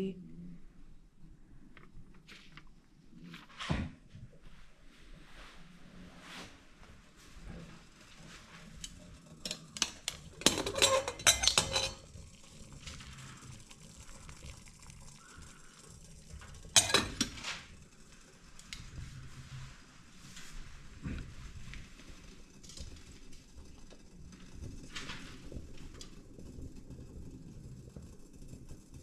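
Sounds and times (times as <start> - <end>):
metal cookware clinking: 9.4 - 12.1, 16.7 - 17.4.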